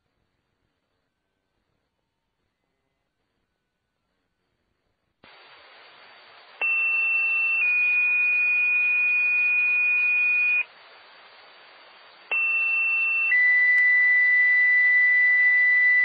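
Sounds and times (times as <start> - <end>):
radio hiss: 5.2 - 16.0.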